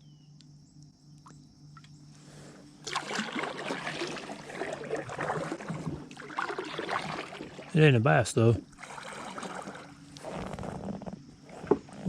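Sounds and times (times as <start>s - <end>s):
paddle splashing in water: 2.8s - 7.8s, 8.6s - 12.0s.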